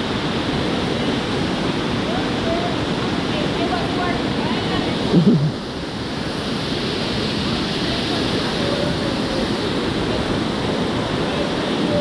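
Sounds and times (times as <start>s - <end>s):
waterfall and river rushing: 0.0s - 12.0s
short voice: 5.1s - 5.6s.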